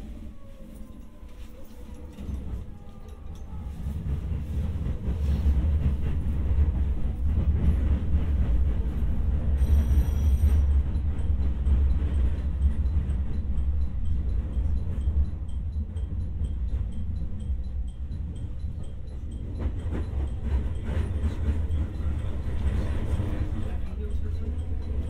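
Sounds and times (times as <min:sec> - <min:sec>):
electric train rumble: 0:00.0 - 0:25.0.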